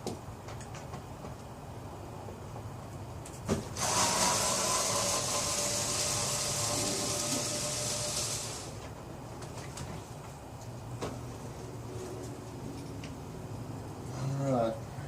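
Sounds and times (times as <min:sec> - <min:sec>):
small power tool motor whirring: 0:03.8 - 0:08.8.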